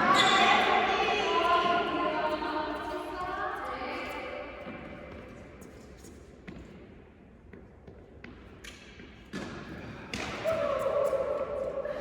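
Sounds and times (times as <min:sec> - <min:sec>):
low hall hum: 0:00.0 - 0:12.0
tennis ball bouncing: 0:07.5 - 0:10.6.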